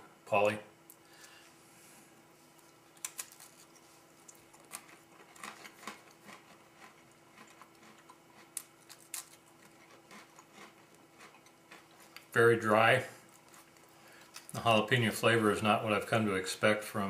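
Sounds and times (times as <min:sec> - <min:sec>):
person chewing cracker: 0:02.5 - 0:12.3, 0:13.2 - 0:14.6.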